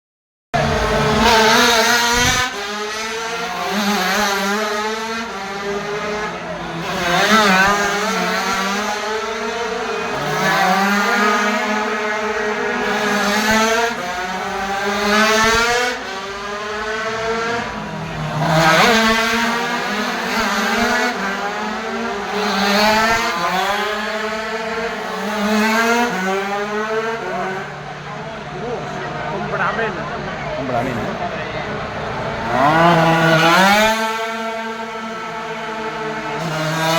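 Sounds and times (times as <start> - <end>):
racing motorcycles revving: 0.6 - 36.9.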